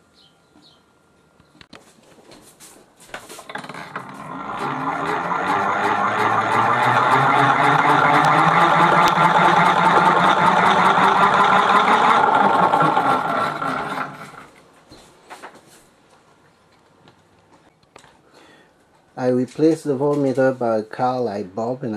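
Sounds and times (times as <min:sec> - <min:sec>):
motor gears whirring with rattle: 0:03.5 - 0:14.5.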